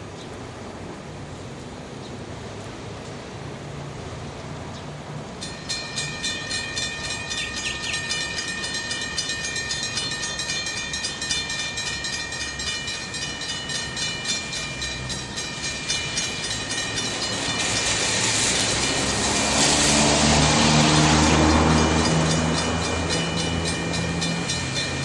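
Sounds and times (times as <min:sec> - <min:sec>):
train rumble: 0:00.4 - 0:25.0
bell striking rapidly: 0:05.4 - 0:19.7, 0:20.8 - 0:25.0.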